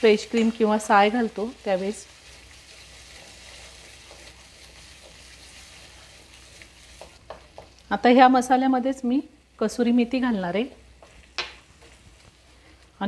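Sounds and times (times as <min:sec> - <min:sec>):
food sizzling in oil: 0:00.0 - 0:12.7
wooden spatula stirring: 0:00.1 - 0:07.8, 0:10.8 - 0:12.9.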